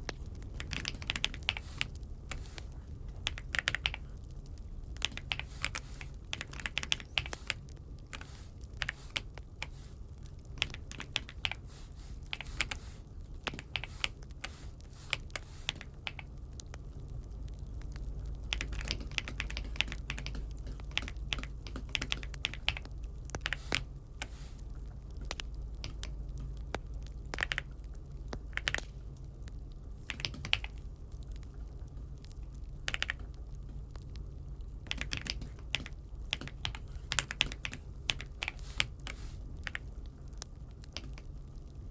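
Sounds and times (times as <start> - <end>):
mechanical keyboard typing: 0.4 - 4.0, 4.9 - 9.8, 10.5 - 11.6, 12.2 - 16.9, 17.6 - 24.4, 25.2 - 26.6, 27.2 - 27.7, 28.5 - 28.9, 30.1 - 30.8, 32.8 - 33.3, 34.8 - 39.9.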